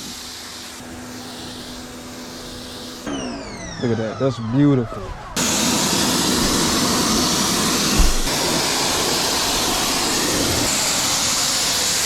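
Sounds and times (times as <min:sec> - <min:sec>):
pressure washer spraying: 0:00.0 - 0:03.6, 0:05.4 - 0:12.0
short low bump: 0:07.9 - 0:08.4.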